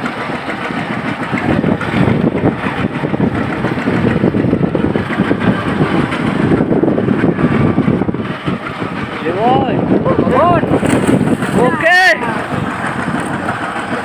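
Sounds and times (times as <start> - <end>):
boat engine running: 0.0 - 14.0
wind noise on microphone: 0.6 - 14.0.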